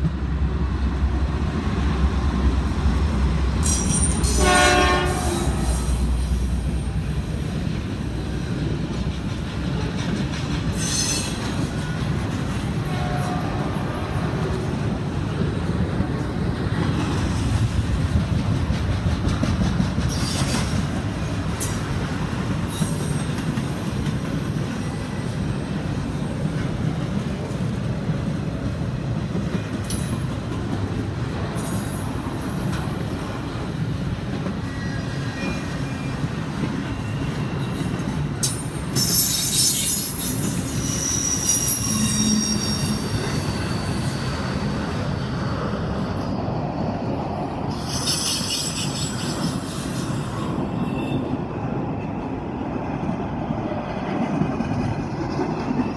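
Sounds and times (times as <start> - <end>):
steel wheels rumbling on rail: 0.0 - 55.9
high-pitched wheel squeal: 10.8 - 11.4, 39.0 - 46.3, 47.7 - 51.3.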